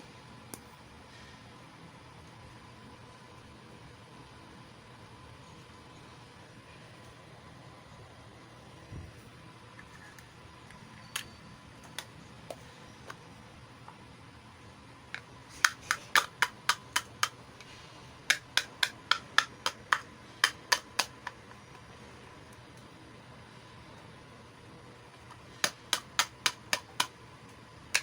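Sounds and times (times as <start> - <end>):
plastic toy pieces clicking: 15.2 - 17.4, 18.3 - 21.7, 25.5 - 27.2.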